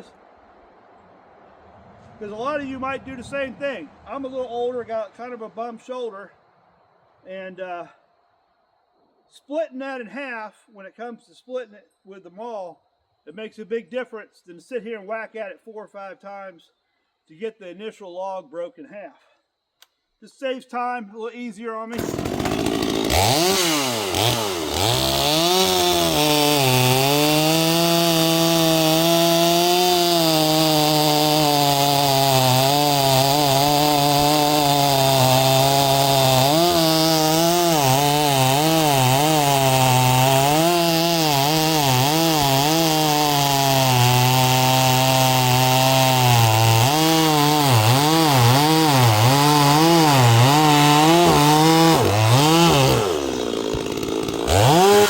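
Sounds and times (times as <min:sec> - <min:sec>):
chainsaw cutting a log: 0:22.0 - 0:55.0.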